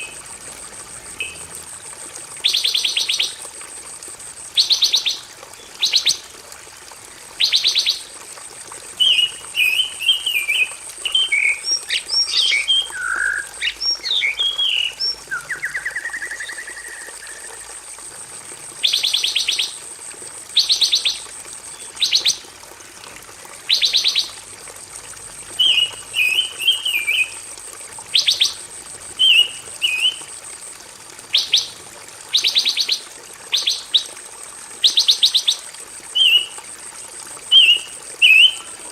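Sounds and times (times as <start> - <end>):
songbird singing: 9.0 - 17.8, 25.6 - 27.4, 28.1 - 28.6, 29.2 - 30.2, 31.3 - 31.8, 36.2 - 36.6, 37.5 - 38.7.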